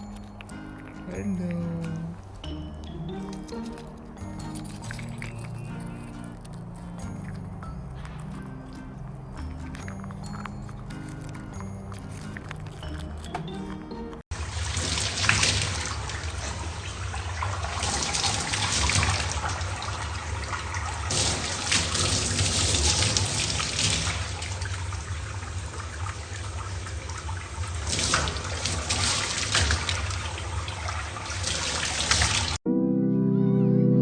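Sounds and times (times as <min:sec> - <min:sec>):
rushing water: 0:14.3 - 0:32.6.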